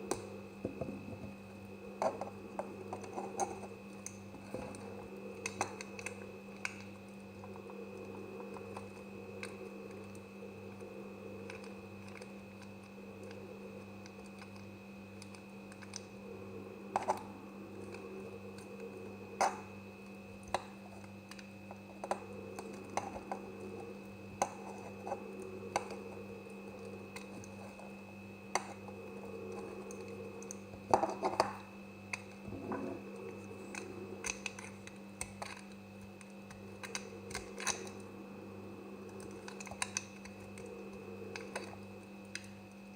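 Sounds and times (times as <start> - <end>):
steady low hum: 0.0 - 42.9
knife cutting soap: 29.5 - 38.0, 39.1 - 40.7.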